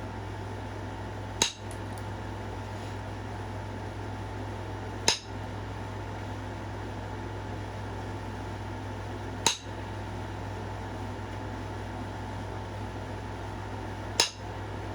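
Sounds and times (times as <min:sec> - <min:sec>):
steady low hum: 0:00.0 - 0:14.9
sharp stone click: 0:01.4 - 0:01.8, 0:05.1 - 0:05.4, 0:14.2 - 0:14.5.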